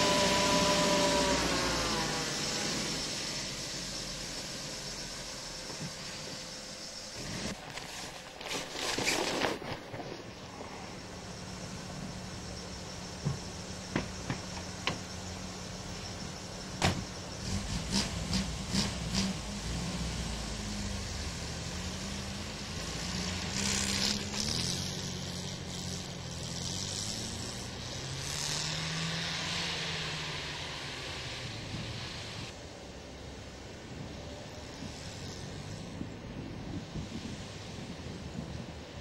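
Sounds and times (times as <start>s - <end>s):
car engine revving: 0.0s - 6.2s, 12.2s - 32.6s
rushing hiss: 0.0s - 8.4s, 9.9s - 32.6s.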